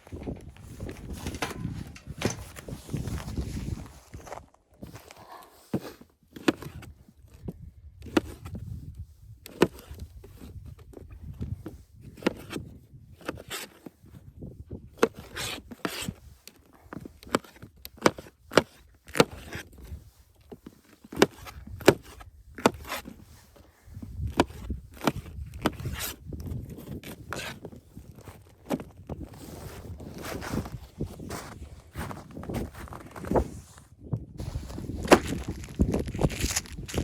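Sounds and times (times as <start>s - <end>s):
wood scraping: 0.0s - 6.0s, 27.0s - 37.0s.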